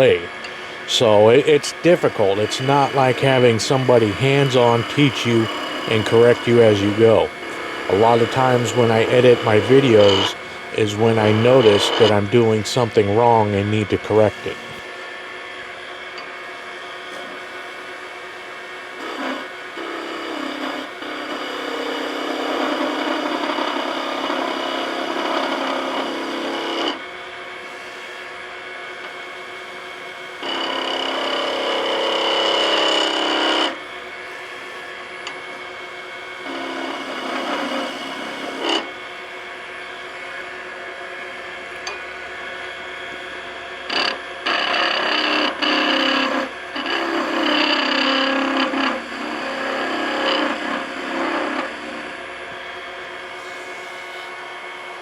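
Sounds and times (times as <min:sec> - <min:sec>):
chisel scraping spinning wood: 0:00.0 - 0:15.0, 0:30.4 - 0:35.8, 0:36.4 - 0:38.9, 0:43.9 - 0:52.2
wood lathe running: 0:00.0 - 0:55.0.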